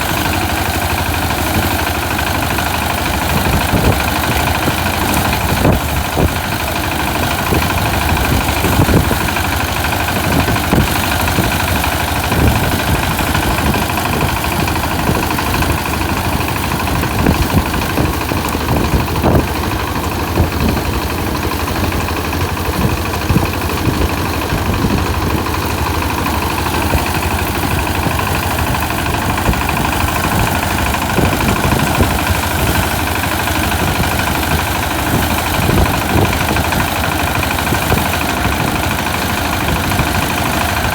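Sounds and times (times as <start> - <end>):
harvester engine droning: 0.0 - 40.9.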